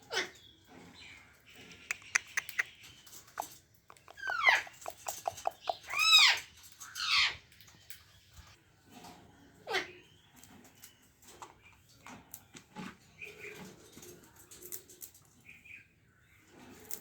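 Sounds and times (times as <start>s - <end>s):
quick sharp clicks: 1.9s - 5.8s
parrot squawking: 3.4s - 6.4s.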